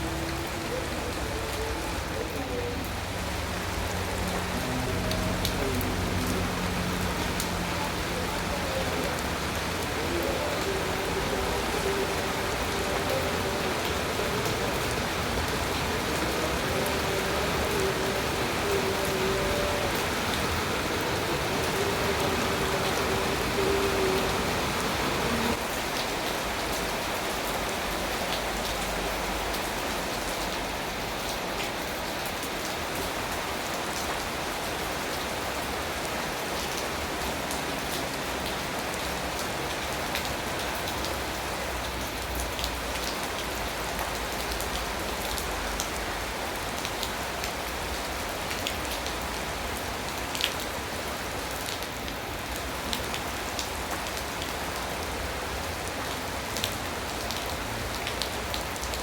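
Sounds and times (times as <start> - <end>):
raindrops tapping close by: 0.0 - 32.8
steady rain falling: 0.0 - 59.0.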